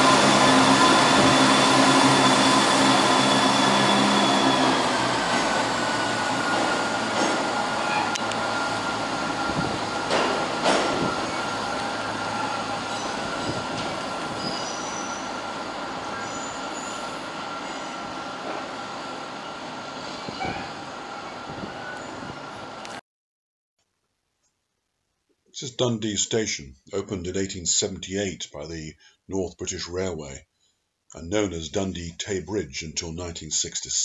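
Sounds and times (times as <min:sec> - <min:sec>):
train wheels squealing: 0:00.0 - 0:10.1, 0:10.8 - 0:22.8.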